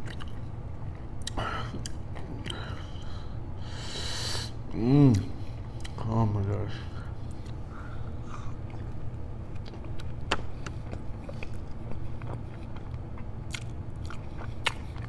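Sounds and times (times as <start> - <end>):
chewing food: 0.0 - 2.9, 8.3 - 15.0
steady low hum: 0.0 - 15.0.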